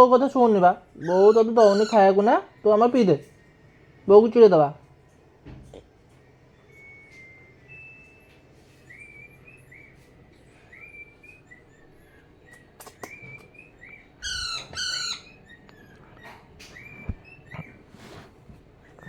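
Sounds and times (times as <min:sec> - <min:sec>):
parrot chirping softly: 0:00.0 - 0:04.0, 0:05.8 - 0:19.0
parrot harsh calls: 0:01.0 - 0:02.5, 0:08.9 - 0:17.9.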